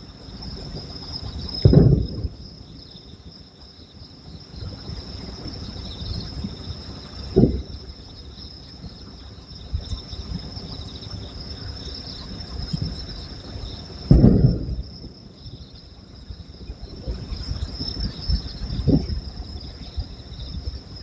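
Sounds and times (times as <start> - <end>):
insects chirping: 0.0 - 21.0
dull fireworks boom: 1.6 - 2.6, 7.4 - 7.8, 14.1 - 15.7.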